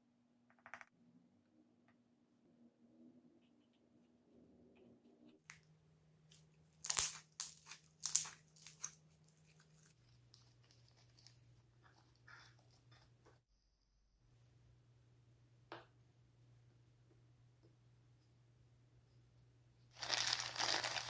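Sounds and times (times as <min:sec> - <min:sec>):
slime squelching: 0:05.4 - 0:13.2.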